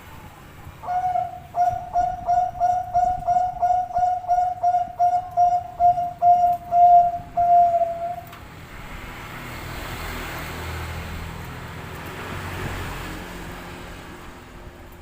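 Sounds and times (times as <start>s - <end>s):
motor vehicle passing by: 0.0s - 15.0s
dove cooing: 0.8s - 8.3s.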